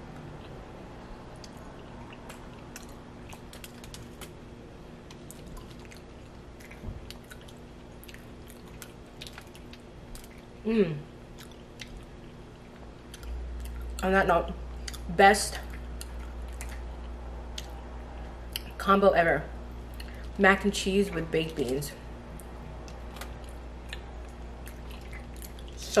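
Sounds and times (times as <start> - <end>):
faint steady hum: 0.0 - 26.0
soft chewing: 0.1 - 18.8, 19.7 - 20.4, 21.1 - 26.0
lip smacks: 1.3 - 4.4, 11.3 - 14.0
person humming mmm: 10.6 - 11.1.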